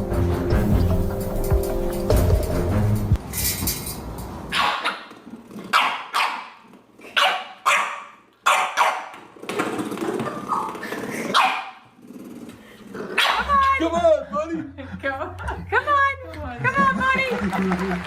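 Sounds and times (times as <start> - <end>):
dog barking: 4.5 - 5.1, 5.7 - 9.2, 11.3 - 11.8, 13.2 - 13.5.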